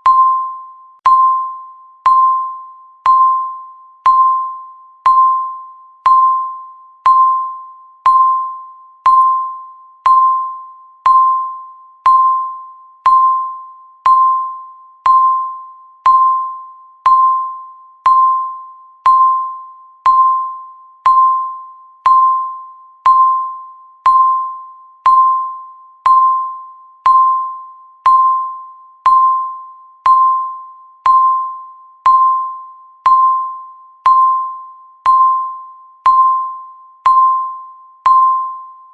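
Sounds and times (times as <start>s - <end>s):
countdown timer beeping: 0.0s - 38.9s.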